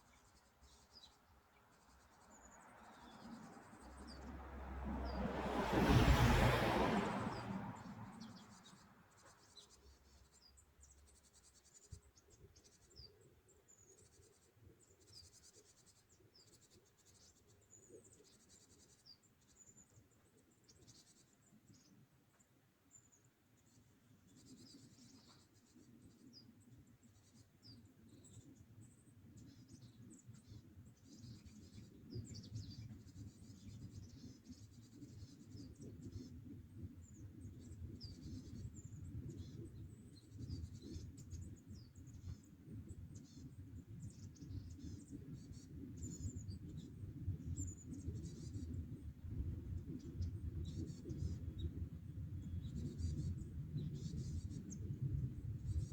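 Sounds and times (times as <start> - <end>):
small birds chirping: 0.0 - 5.2, 7.8 - 55.9
low rumble: 4.3 - 8.1.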